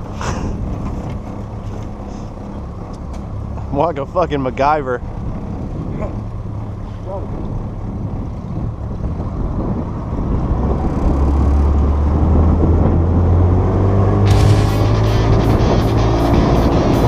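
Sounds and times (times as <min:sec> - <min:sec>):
boat motor running: 0:14.3 - 0:17.0
music: 0:14.3 - 0:17.0.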